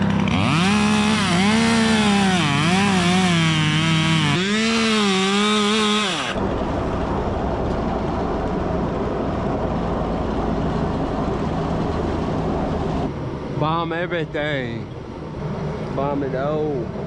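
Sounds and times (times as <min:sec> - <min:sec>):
chainsaw revving and idling: 0:00.0 - 0:06.4.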